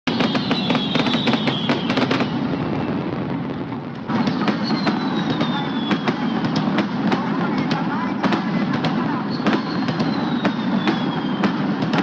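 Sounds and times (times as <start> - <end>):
fireworks crackling: 0.1 - 12.0.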